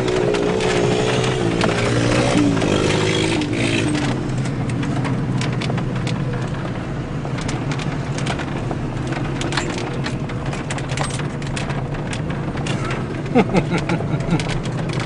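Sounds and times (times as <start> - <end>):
off-road vehicle engine running: 0.0 - 15.0
sharp knocks and clatters: 0.0 - 15.0.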